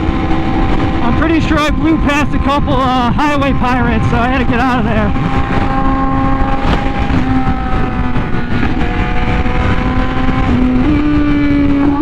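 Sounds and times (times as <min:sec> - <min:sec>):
motorcycle engine at high speed: 0:00.0 - 0:12.0
wind and road rush: 0:00.0 - 0:12.0.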